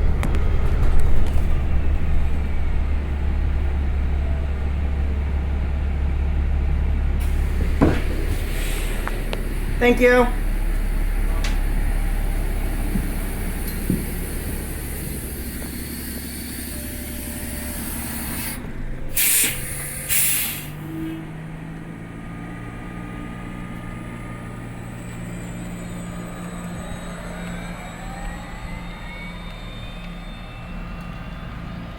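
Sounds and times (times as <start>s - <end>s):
diesel engine idling: 0.0s - 31.9s
bus air brakes hissing: 7.2s - 21.6s.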